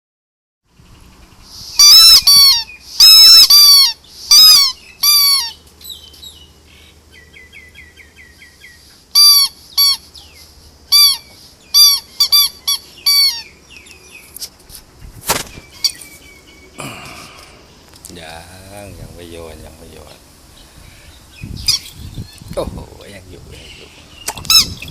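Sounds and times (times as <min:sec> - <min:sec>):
squeaky rubber toy squeaking: 0:01.8 - 0:05.5, 0:09.2 - 0:10.0, 0:10.9 - 0:13.4, 0:24.5 - 0:24.9
sharp click: 0:15.2 - 0:15.6.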